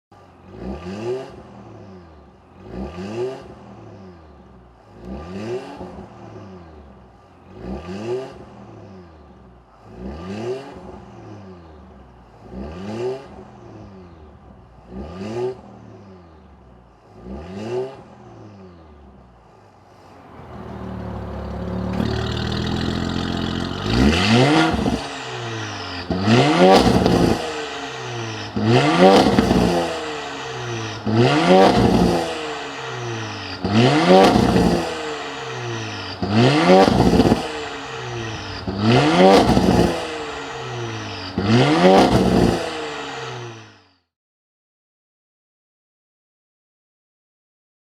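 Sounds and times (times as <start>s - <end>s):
car exhaust revving: 20.4s - 43.8s.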